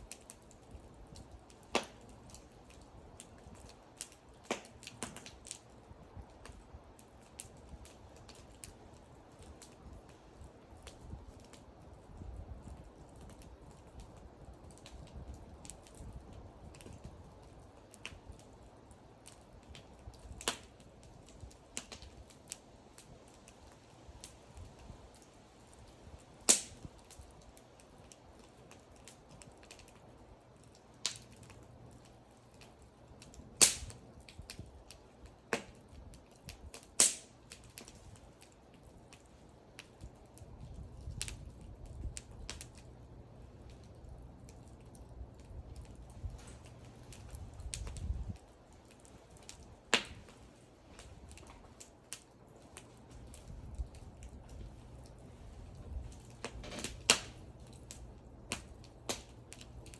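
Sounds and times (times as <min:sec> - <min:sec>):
wood fire crackling: 0:00.0 - 0:59.9
loud sharp fire pops: 0:00.1 - 0:05.6, 0:19.3 - 0:22.6, 0:26.1 - 0:30.0, 0:32.6 - 0:42.9, 0:44.5 - 0:59.9.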